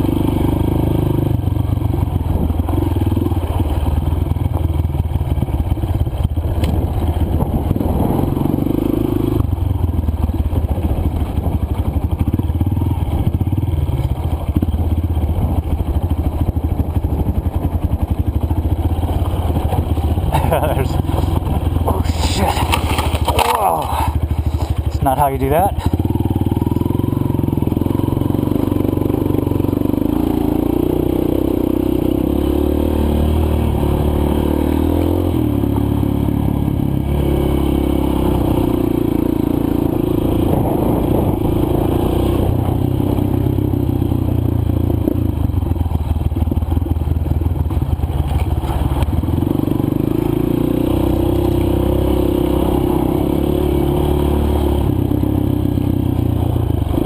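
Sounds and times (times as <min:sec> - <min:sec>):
dirt bike engine revving: 0:18.5 - 0:43.9, 0:49.3 - 0:56.0.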